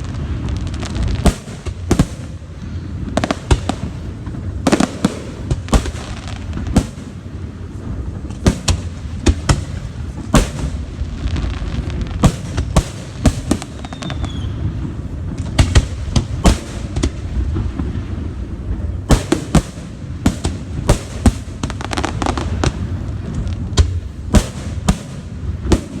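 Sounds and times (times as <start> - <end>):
fireworks bangs: 0.0 - 26.0
falling firework whistle: 13.6 - 14.8.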